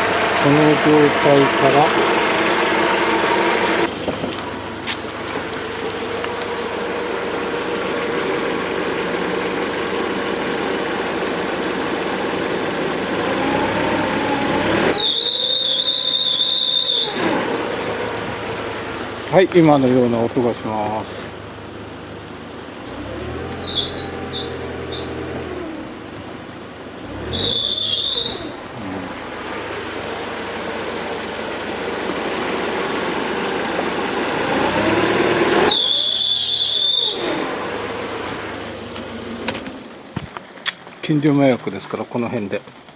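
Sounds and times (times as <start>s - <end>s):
car engine idling and revving: 0.0s - 41.7s
high-pitched wavering squeal: 6.6s - 19.0s, 23.4s - 25.4s, 27.3s - 38.6s.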